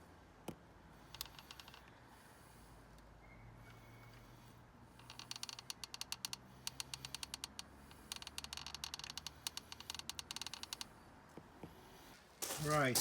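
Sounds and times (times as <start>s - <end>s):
rapid sharp mechanical clicks: 1.0s - 2.0s, 4.9s - 11.0s.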